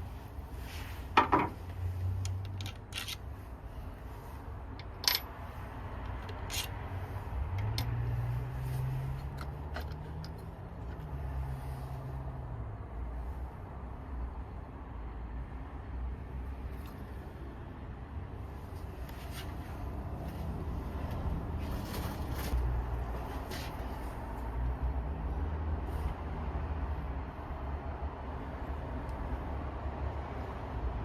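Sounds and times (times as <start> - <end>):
metallic clicks and clinks: 2.2 - 3.2, 4.8 - 6.7.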